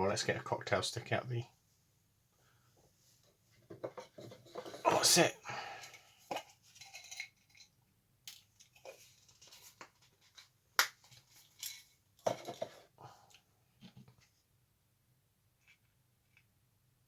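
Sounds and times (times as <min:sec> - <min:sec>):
small objects clicking and rustling: 0:05.8 - 0:13.4.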